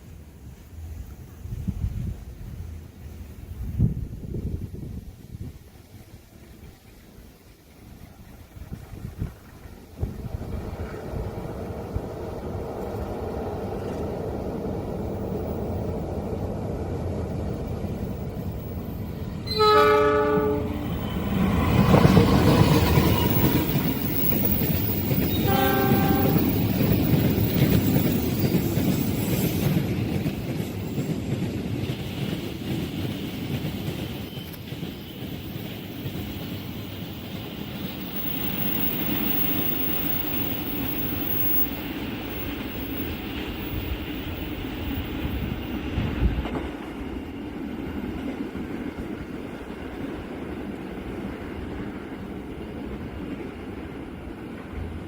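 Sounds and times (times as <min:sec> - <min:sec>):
train rumbling on rails: 0:00.0 - 0:55.0
locomotive horn: 0:19.4 - 0:20.8, 0:25.3 - 0:26.5.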